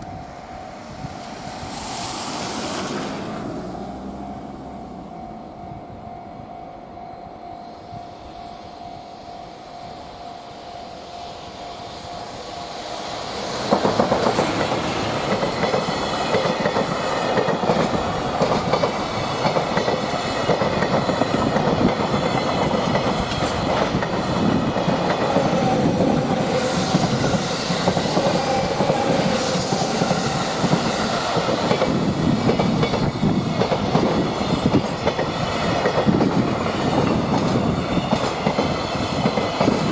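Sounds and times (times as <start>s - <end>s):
train hum: 0.0s - 39.9s
wheels clacking over rail joints: 13.0s - 39.9s.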